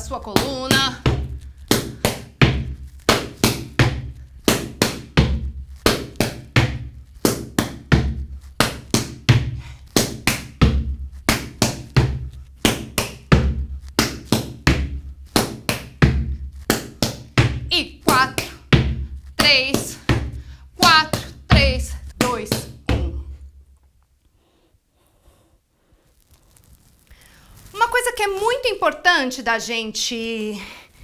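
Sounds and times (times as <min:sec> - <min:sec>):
boots stamping on a platform: 0:00.0 - 0:23.7
hands slapping rubber boots: 0:00.0 - 0:24.2.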